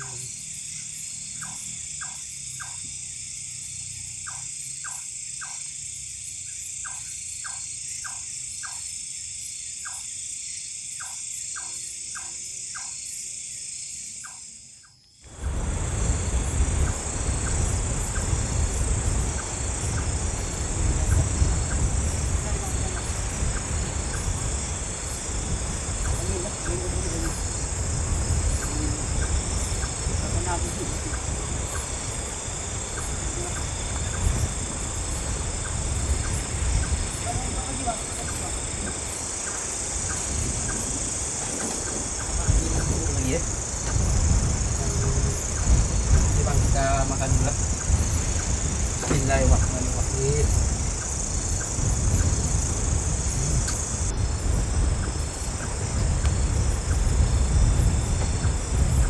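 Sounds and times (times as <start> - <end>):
high insect buzz: 0.0 - 59.0
wind buffeting microphone: 15.3 - 59.0.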